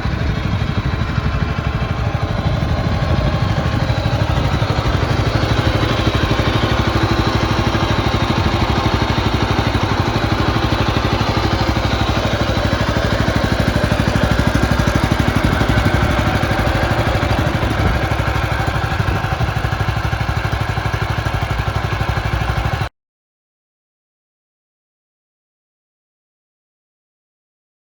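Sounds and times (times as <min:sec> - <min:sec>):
tractor engine running: 0:00.0 - 0:22.9.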